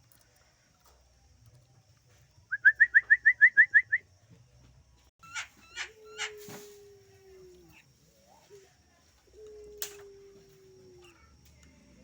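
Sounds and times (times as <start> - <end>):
harsh scratchy bird calls: 5.2 - 6.7.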